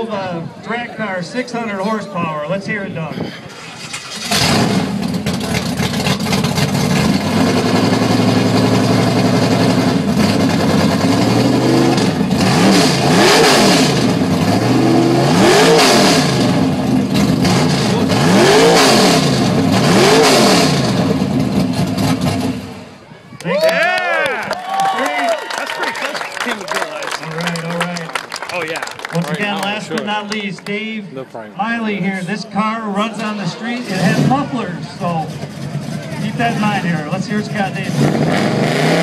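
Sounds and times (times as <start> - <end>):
car engine idling and revving: 3.5 - 23.1, 33.0 - 39.0.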